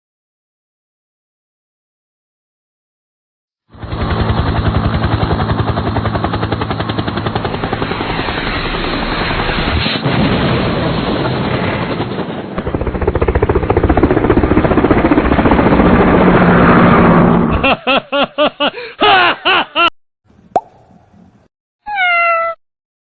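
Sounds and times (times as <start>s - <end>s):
helicopter rotor blades chopping: 3.7s - 9.8s, 11.2s - 17.4s.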